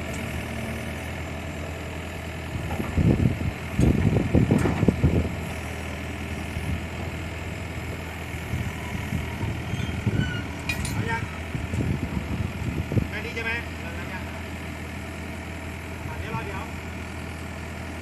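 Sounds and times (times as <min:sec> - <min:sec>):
excavator diesel engine idling: 0:00.0 - 0:18.0.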